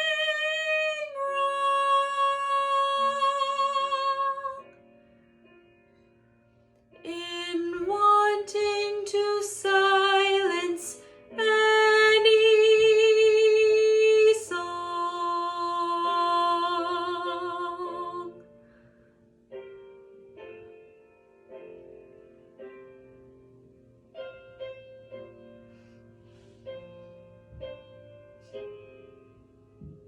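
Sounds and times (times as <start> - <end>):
woman singing classical song: 0.0 - 4.8, 7.0 - 18.5
quiet musical accompaniment: 0.0 - 30.0.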